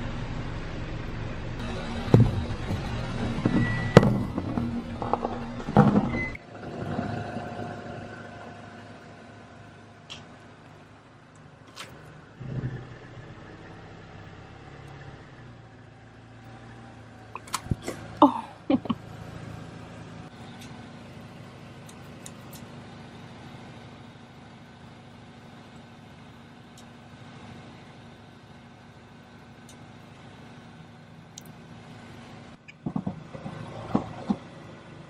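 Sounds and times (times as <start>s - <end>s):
car engine running: 0.0s - 35.0s
cracking and squeaking: 1.6s - 7.9s.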